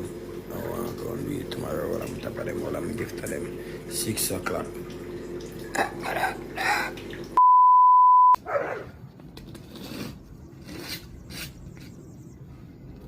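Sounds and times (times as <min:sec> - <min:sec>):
high censor beep: 0:07.4 - 0:08.4.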